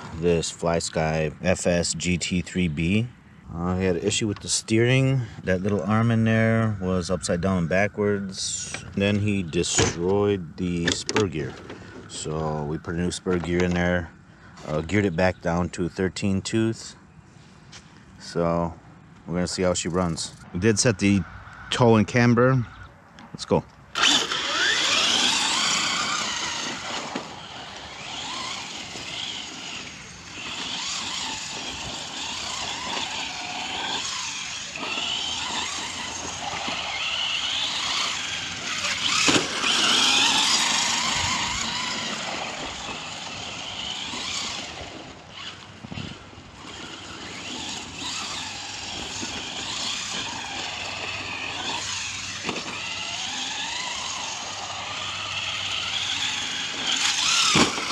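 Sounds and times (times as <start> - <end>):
toy truck electric motor whine: 23.9 - 57.9.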